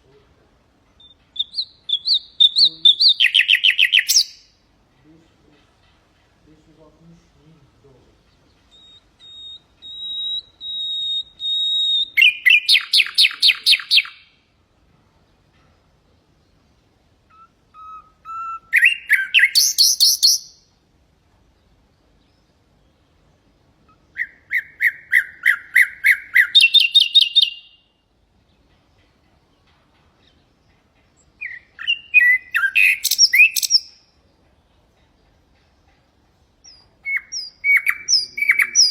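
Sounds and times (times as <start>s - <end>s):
nightingale singing: 0.0s - 38.9s.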